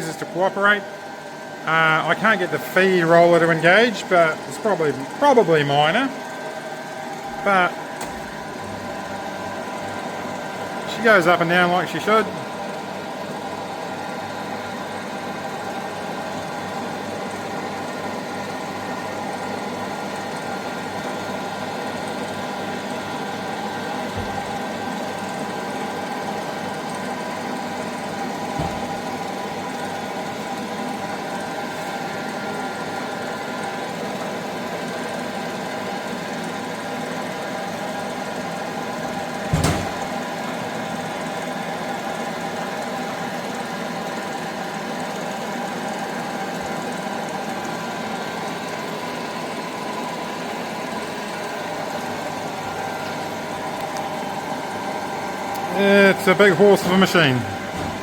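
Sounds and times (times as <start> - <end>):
bandsaw machine hum: 0.0 - 34.0.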